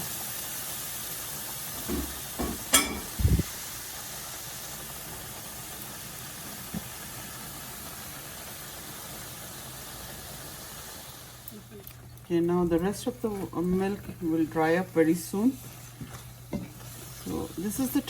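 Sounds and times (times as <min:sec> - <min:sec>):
food sizzling in a pan: 0:00.0 - 0:18.0
knocks: 0:01.8 - 0:03.3.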